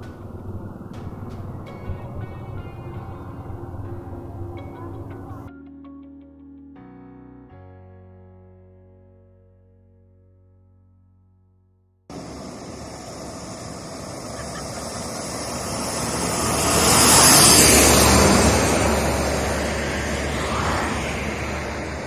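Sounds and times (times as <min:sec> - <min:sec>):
vehicle passing by: 0:00.0 - 0:05.5, 0:12.1 - 0:22.0.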